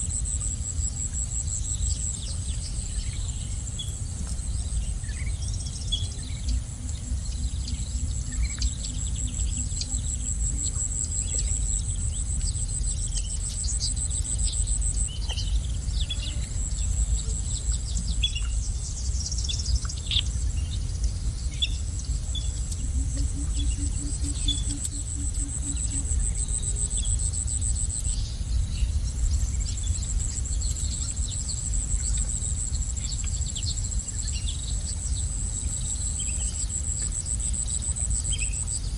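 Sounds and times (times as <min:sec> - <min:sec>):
low rumble: 0:00.0 - 0:36.5
low pulsing buzz: 0:00.0 - 0:38.9
insect trilling: 0:21.3 - 0:33.0.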